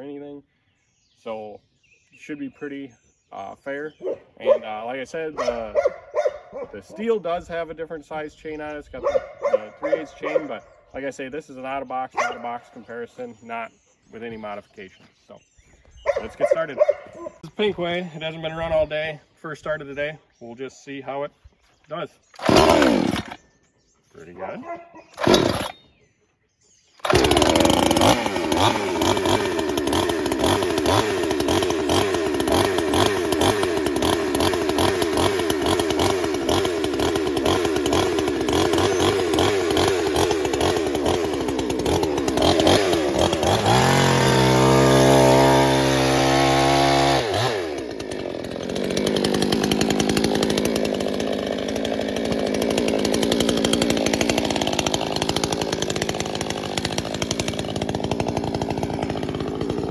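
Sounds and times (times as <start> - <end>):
chainsaw cutting log: 4.0 - 7.9, 8.5 - 10.7, 12.2 - 13.0, 16.1 - 17.8, 22.3 - 23.4, 24.4 - 26.0, 27.0 - 59.9.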